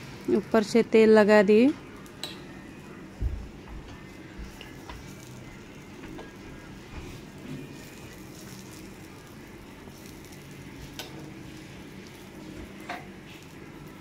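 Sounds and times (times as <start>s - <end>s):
flatbread sizzling in oil: 4.1s - 14.0s.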